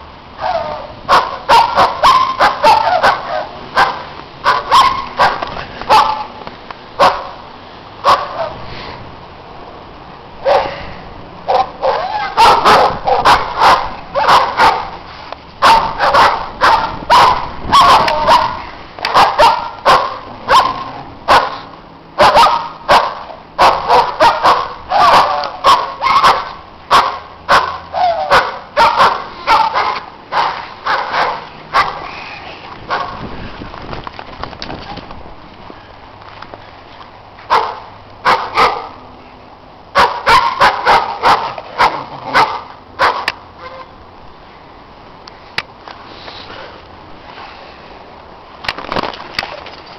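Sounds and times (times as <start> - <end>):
dogs barking: 0.4 - 6.4, 7.0 - 7.4, 8.0 - 8.6, 10.4 - 10.7, 11.5 - 15.0, 15.6 - 32.1, 32.8 - 33.2, 37.5 - 39.0, 39.9 - 43.9.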